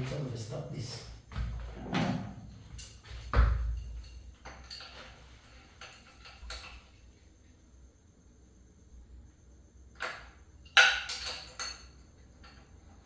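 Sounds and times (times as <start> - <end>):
metal tools knocking and clinking: 10.0 - 12.6.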